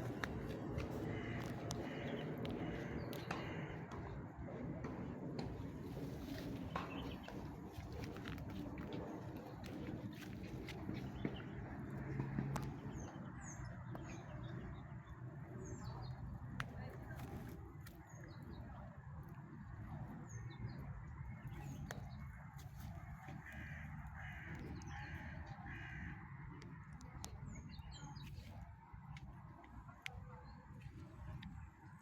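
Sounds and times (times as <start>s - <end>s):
birds chirping: 0.0s - 18.9s
steady low rumble: 0.0s - 32.0s.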